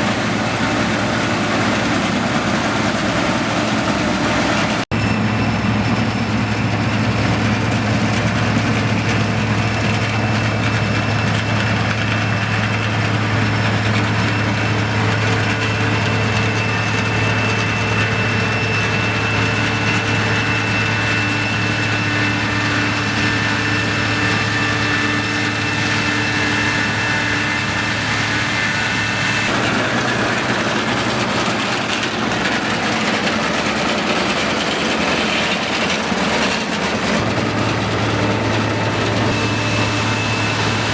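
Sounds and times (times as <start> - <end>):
combine harvester engine drone: 0.0 - 40.9
thin high whine: 10.0 - 40.9.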